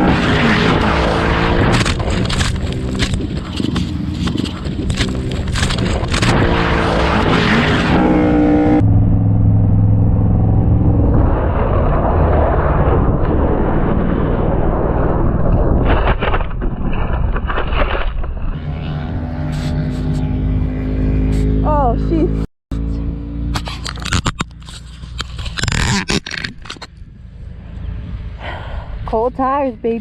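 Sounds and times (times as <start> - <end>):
wind rush: 0.0 - 22.4
motorcycle engine running: 0.8 - 11.1, 18.5 - 28.4.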